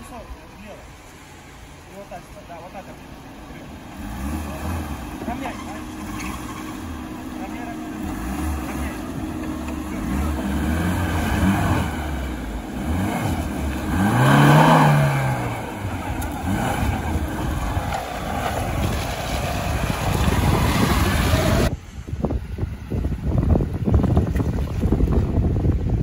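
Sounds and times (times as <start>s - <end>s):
dull engine rumble: 0.0s - 26.0s
car engine revving: 2.7s - 21.7s.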